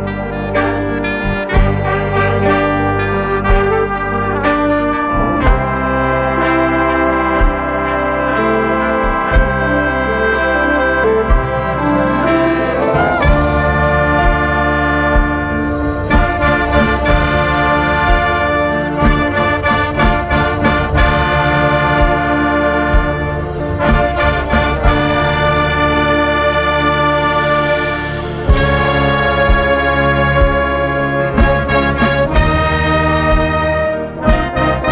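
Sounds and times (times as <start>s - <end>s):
steady low drum beat: 0.0s - 9.9s, 11.3s - 34.9s
brass band playing chords: 0.0s - 34.9s.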